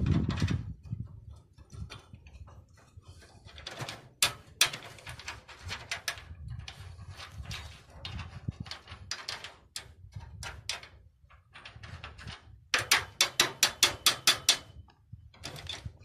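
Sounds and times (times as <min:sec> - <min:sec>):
knocks and scraping on metal: 0:00.0 - 0:16.0
ringing taps on metal: 0:12.8 - 0:14.9.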